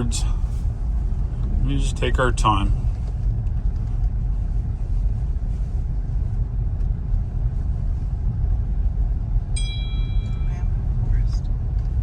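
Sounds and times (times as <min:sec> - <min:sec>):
tyres rumbling on snowy road: 0:00.0 - 0:12.0
short high tone: 0:09.6 - 0:10.7.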